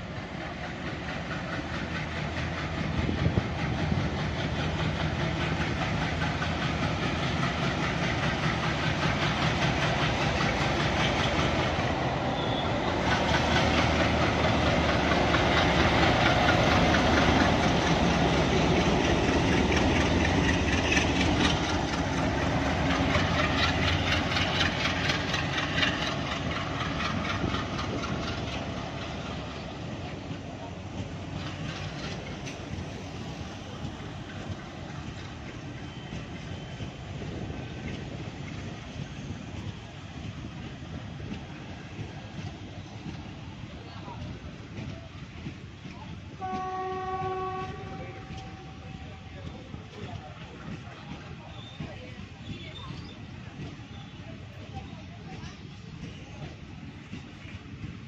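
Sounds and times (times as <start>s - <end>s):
diesel locomotive engine under load: 0.0s - 58.0s.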